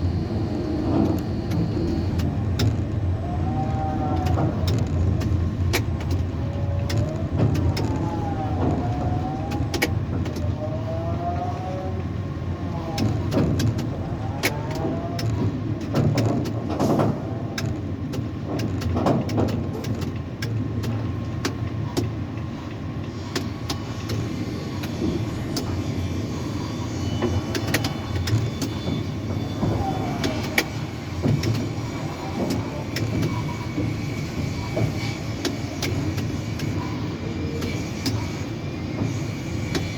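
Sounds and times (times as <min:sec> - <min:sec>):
rising and falling whines: 0:00.0 - 0:05.2, 0:06.4 - 0:13.2
crane machinery rumbling: 0:00.0 - 0:39.9.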